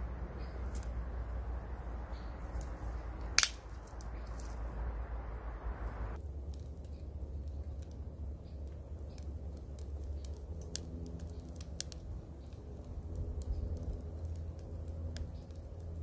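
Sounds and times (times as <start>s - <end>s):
steady low rumble: 0.0s - 16.0s
sharp clicks and crackles: 0.4s - 1.0s, 2.1s - 4.6s, 6.4s - 16.0s.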